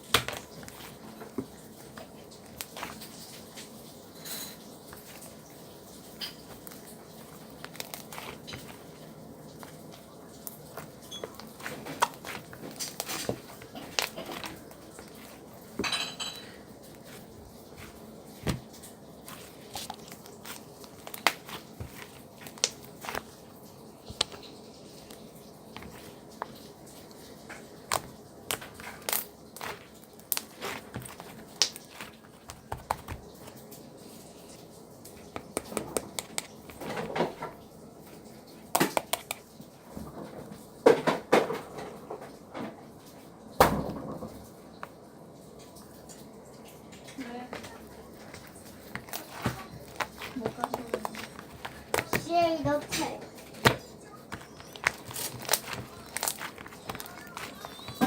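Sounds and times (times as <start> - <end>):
hard objects clicking and knocking: 10.6 - 23.4, 27.8 - 33.6, 47.6 - 58.0.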